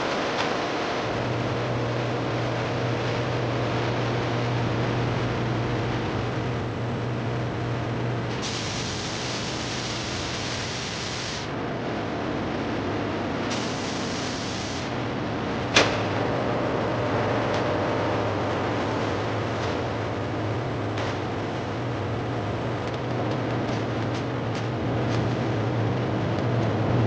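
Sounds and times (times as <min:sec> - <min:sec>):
food-processing machinery humming: 0:00.0 - 0:27.0
hissing bursts: 0:08.3 - 0:11.6, 0:13.5 - 0:15.0.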